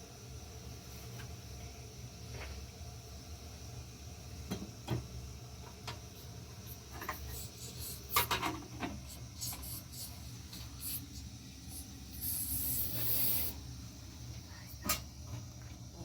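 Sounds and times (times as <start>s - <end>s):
steady low hum: 5.0s - 16.0s.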